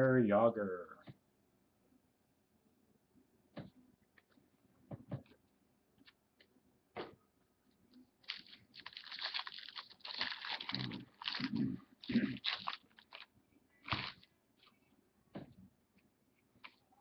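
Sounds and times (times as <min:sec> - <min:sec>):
packaging crinkling and rustling: 0:08.2 - 0:14.3.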